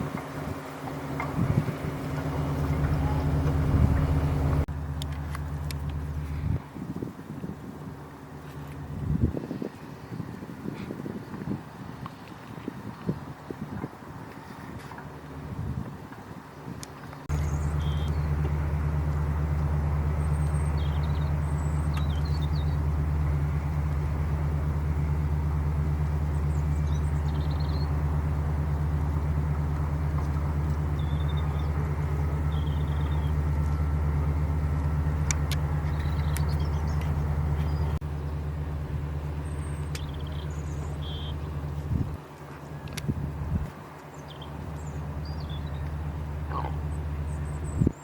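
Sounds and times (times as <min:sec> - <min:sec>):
vehicle engine idling: 0:00.0 - 0:48.0
high bird chirps: 0:17.4 - 0:18.3, 0:31.0 - 0:31.8, 0:32.5 - 0:33.4, 0:39.4 - 0:41.5.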